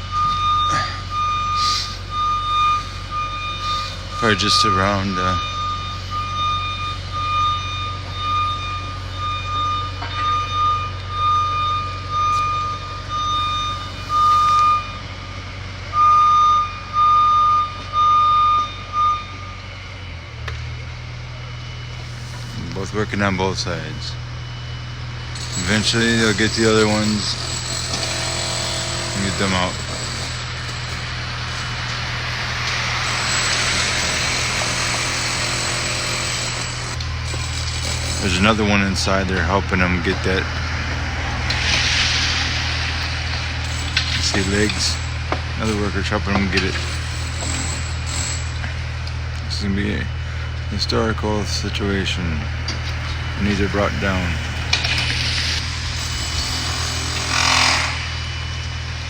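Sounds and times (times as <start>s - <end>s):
backup alarm beeping: 0.0s - 41.5s
machine engine running low: 0.0s - 56.6s
engine rumble: 36.8s - 56.5s.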